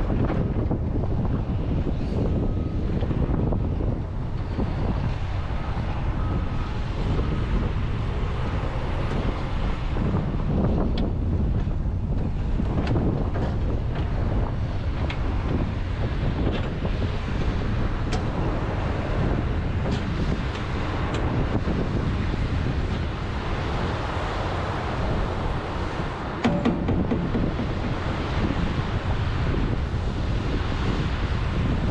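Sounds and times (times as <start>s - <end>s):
wind buffeting microphone: 0.0s - 31.9s
excavator diesel engine running: 24.1s - 29.8s
bucket knocks: 26.4s - 28.1s.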